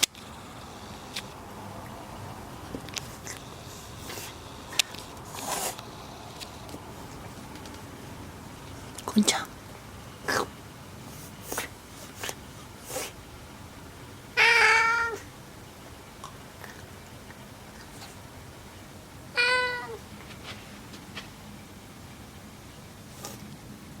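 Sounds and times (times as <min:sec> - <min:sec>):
cat meowing: 0:14.4 - 0:15.3, 0:19.3 - 0:20.0.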